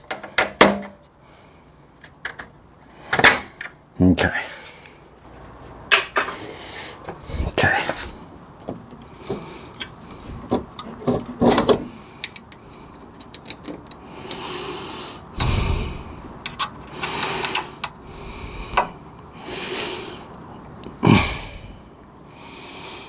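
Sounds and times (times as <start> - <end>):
hand tools and metal parts clinking: 11.1 - 14.4, 16.4 - 18.0.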